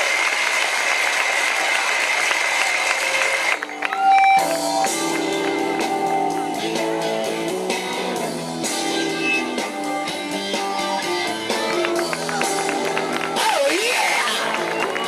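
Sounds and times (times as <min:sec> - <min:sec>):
guitar notes and chords: 0:03.6 - 0:15.0.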